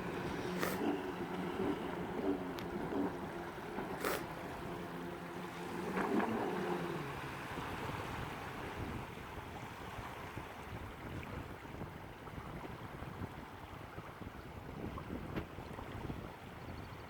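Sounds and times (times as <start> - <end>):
low motor hum: 0.0 - 9.5
water noise: 0.0 - 16.7
wind noise on microphone: 0.0 - 17.0.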